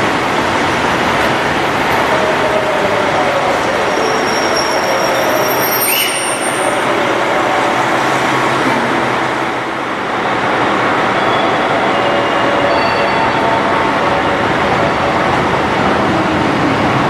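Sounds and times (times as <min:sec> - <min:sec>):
train rumbling on rails: 0:00.0 - 0:17.0
high wheel squeals: 0:03.8 - 0:06.8.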